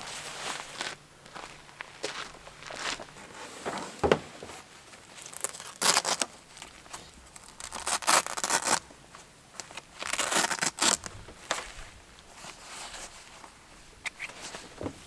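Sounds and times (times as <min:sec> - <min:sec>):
rough scraping and tearing: 0:05.2 - 0:08.8, 0:09.6 - 0:11.2.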